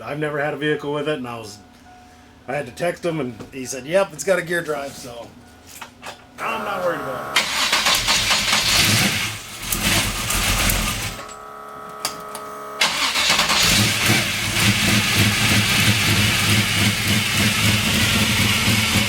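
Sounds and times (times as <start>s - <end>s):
steady whine: 6.4s - 8.4s
engine choppy idle: 12.8s - 19.0s.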